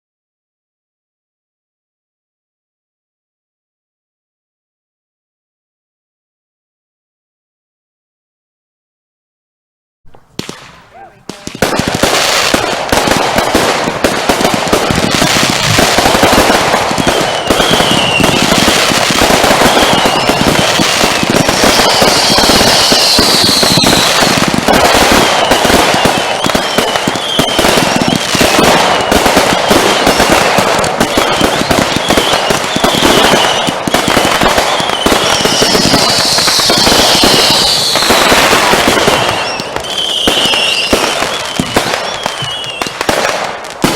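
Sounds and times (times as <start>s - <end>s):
firework whistles: 10.1s - 43.9s
fireworks banging and crackling: 10.1s - 43.9s.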